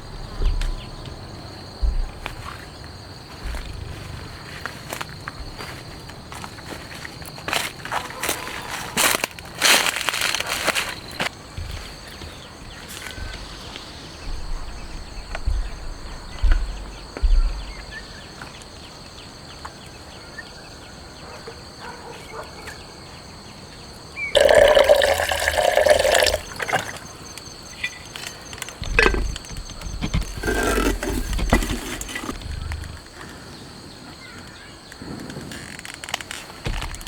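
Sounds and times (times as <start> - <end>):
soft low thumps: 0.0 - 4.7, 11.6 - 18.2, 28.8 - 33.1
water splashing: 24.4 - 27.2.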